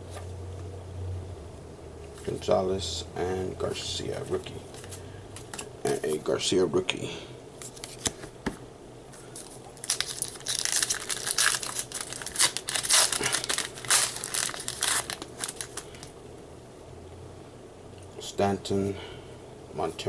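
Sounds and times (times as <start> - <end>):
foil wrapper tearing and crinkling: 9.4 - 16.1.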